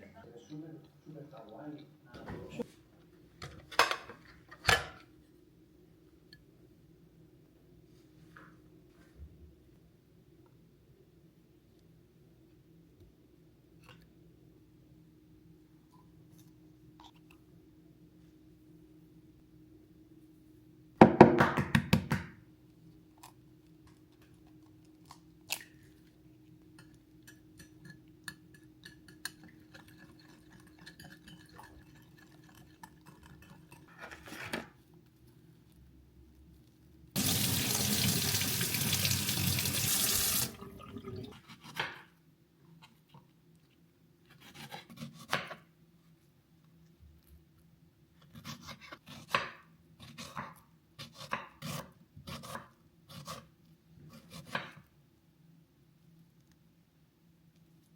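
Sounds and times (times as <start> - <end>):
tap running into a sink: 37.2 - 40.8.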